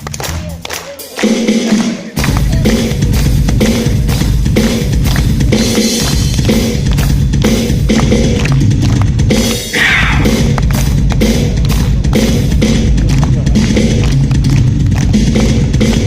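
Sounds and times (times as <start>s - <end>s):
drum solo: 1.2s - 16.0s.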